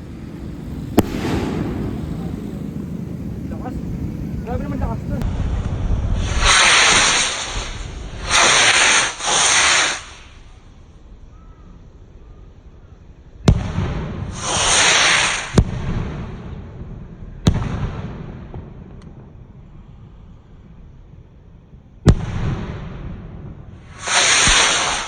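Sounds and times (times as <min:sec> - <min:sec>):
firework shells bursting: 0:00.0 - 0:05.2, 0:06.2 - 0:10.5, 0:13.6 - 0:15.7, 0:23.8 - 0:25.0
firework shots hissing upward: 0:00.0 - 0:05.2, 0:06.1 - 0:10.7, 0:13.5 - 0:16.2, 0:23.8 - 0:25.0.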